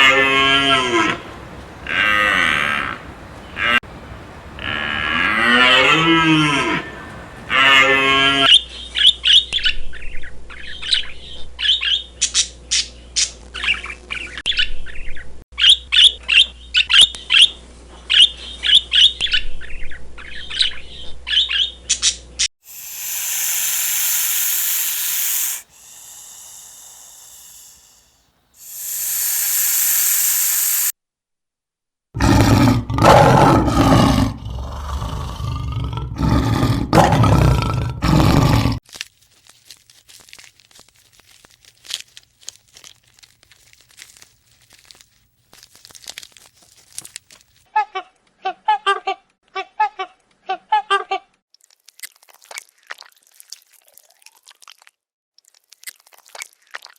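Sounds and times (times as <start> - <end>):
birds chirping: 1.1 - 4.8, 6.6 - 7.6.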